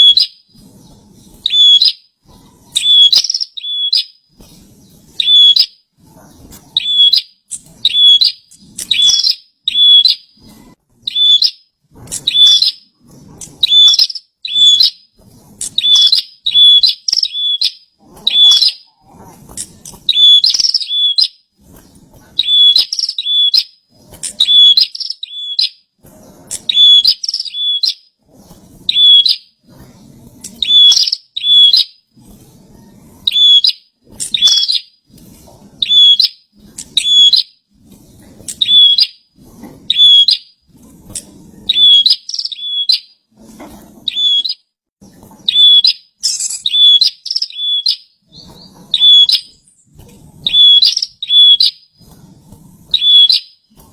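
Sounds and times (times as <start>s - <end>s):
bird chirping song: 0.0s - 5.8s, 6.8s - 21.4s, 22.4s - 25.8s, 26.5s - 28.1s, 28.9s - 29.5s, 30.6s - 32.0s, 33.2s - 35.0s, 35.8s - 37.6s, 38.5s - 39.2s, 41.7s - 43.2s, 44.1s - 44.6s, 45.5s - 52.2s, 52.9s - 53.6s.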